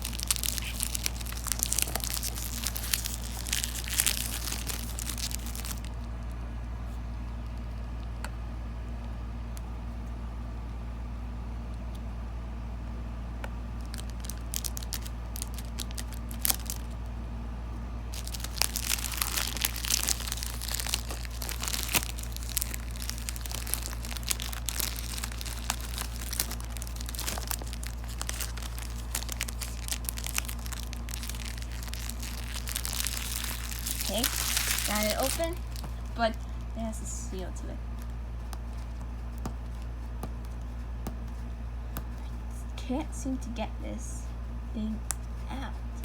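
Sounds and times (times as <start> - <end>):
plastic wrap crinkling and tearing: 0.0 - 6.0, 13.8 - 17.0, 18.1 - 36.7, 37.9 - 39.4
steady low hum: 0.0 - 46.0.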